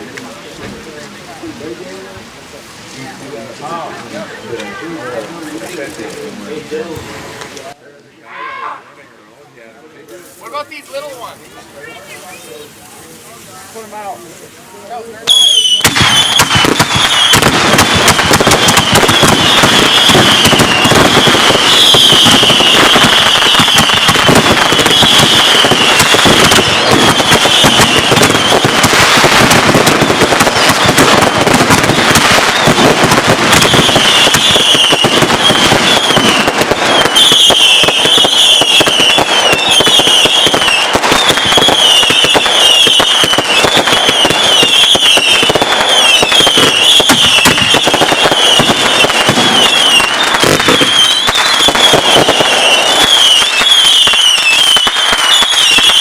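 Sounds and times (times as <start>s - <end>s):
fireworks crackling and banging: 0.0s - 7.8s, 10.1s - 56.0s
falling firework whistles: 15.2s - 56.0s.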